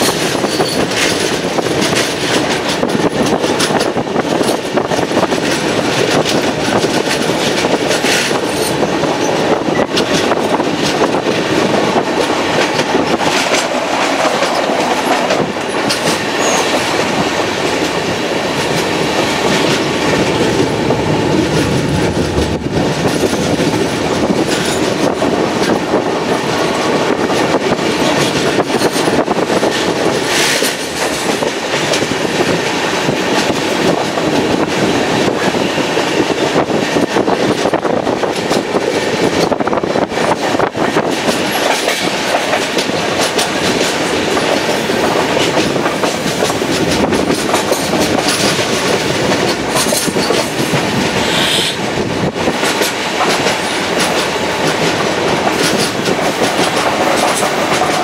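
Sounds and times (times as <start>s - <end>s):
train wheels rushing on rails: 0.0s - 58.0s
sharp wheel clacks: 41.0s - 51.8s, 52.6s - 58.0s.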